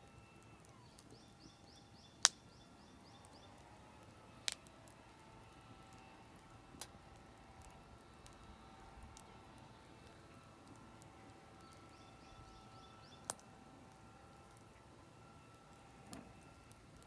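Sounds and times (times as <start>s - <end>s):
campfire crackling: 0.0s - 17.0s
bird chirping: 0.1s - 3.6s, 11.4s - 16.7s.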